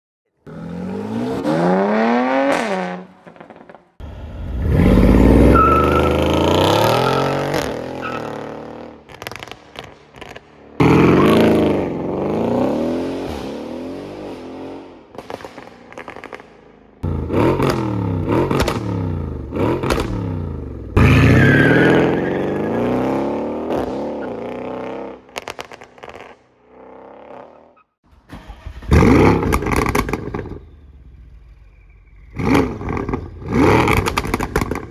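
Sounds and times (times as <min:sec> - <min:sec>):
car engine revving: 0:00.5 - 0:09.6, 0:17.0 - 0:24.6, 0:28.1 - 0:34.9.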